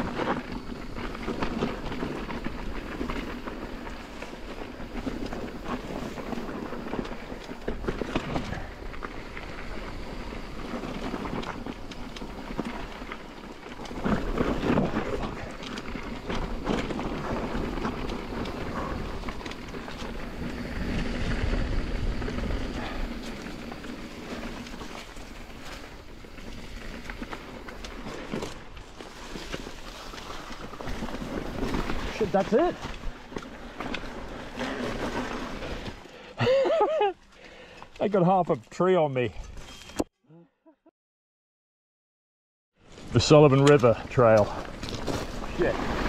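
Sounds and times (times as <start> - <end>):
tyres rolling over dirt and rocks: 0.0 - 39.5, 42.9 - 46.0.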